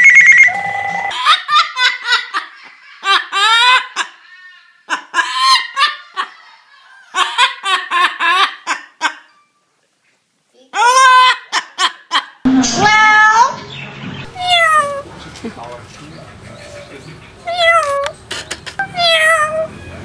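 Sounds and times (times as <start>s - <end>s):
electronic ringtone: 0.0s - 1.2s
parrot mimicking laughter: 1.1s - 9.3s, 10.7s - 13.5s, 14.3s - 15.1s, 17.4s - 19.7s.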